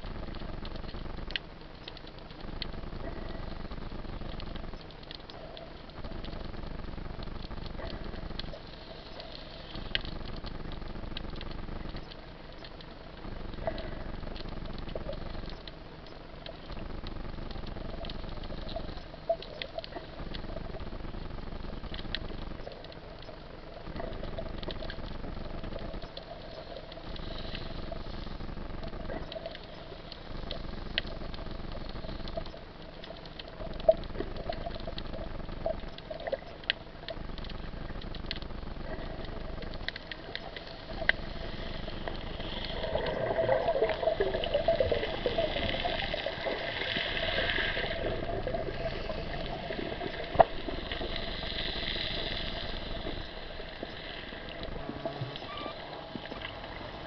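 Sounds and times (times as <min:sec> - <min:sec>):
water rushing and splashing: 0:39.7 - 0:57.0.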